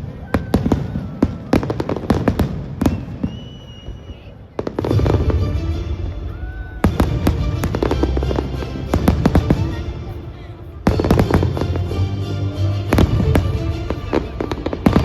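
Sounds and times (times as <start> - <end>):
fireworks cracking and banging: 0.0 - 15.0
music playing: 4.8 - 15.0.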